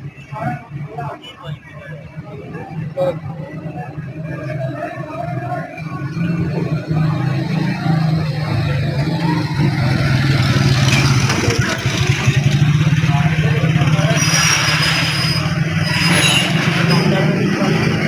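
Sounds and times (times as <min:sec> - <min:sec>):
street noise: 0:00.0 - 0:18.0
vehicle engine running: 0:02.0 - 0:18.0.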